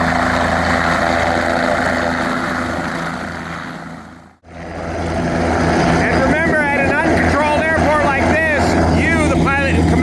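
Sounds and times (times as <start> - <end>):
aircraft engine droning: 0.0 - 10.0.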